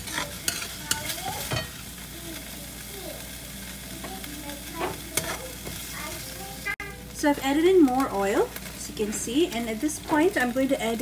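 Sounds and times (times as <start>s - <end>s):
spatula scraping a wok: 0.0s - 1.9s, 4.7s - 5.9s
chicken sizzling in oil: 0.0s - 11.0s.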